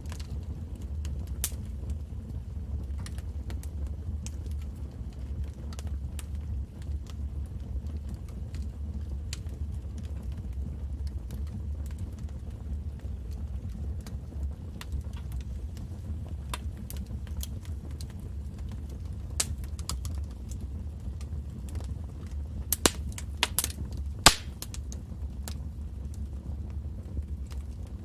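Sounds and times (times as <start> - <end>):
sharp pops from fire: 0.0 - 2.1, 13.0 - 27.9
fireplace fire crackling: 0.0 - 28.0
low rumble of flames: 0.0 - 28.0.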